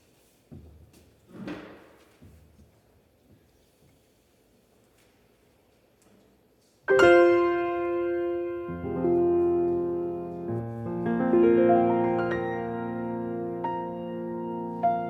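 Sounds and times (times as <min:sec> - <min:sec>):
piano chords: 0:06.9 - 0:15.0.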